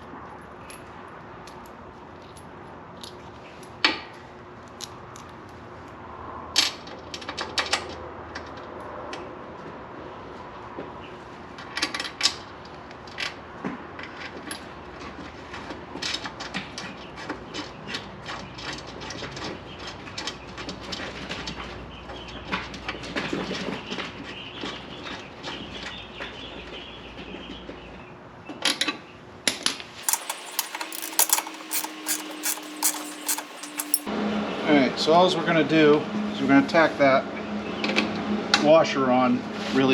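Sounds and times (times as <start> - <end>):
metallic clicks of hand tools: 30.0 - 34.1.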